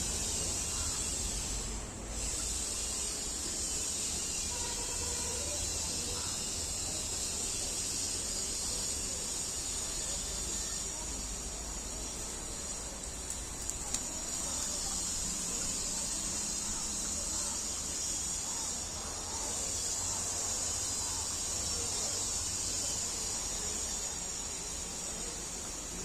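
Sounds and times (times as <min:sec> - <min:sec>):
insects chirping: 0:00.0 - 0:26.0
faint clicks: 0:13.1 - 0:14.7.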